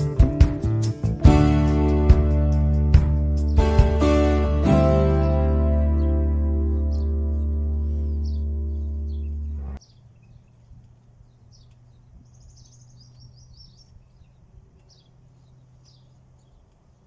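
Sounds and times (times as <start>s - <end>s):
held music chord: 0.0s - 9.8s
small birds chirping: 2.1s - 17.0s.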